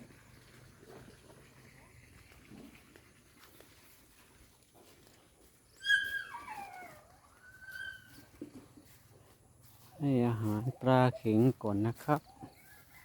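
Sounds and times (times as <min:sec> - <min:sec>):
dog whining: 0:05.8 - 0:08.1.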